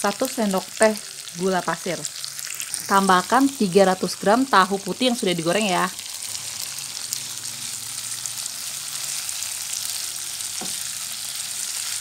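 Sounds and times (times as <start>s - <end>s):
tofu sizzling in oil: 0.0s - 12.0s
knock on wok: 10.6s - 10.8s.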